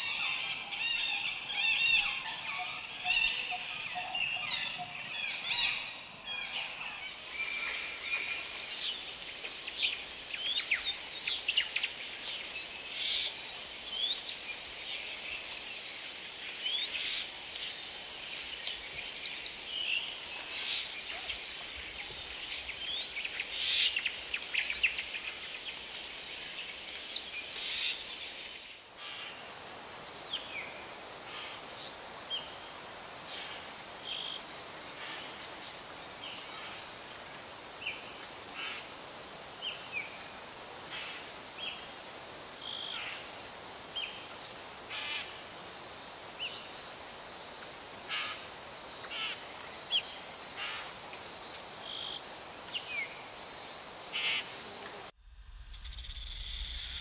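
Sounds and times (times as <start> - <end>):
high pulsing insect trill: 31.2 - 57.0.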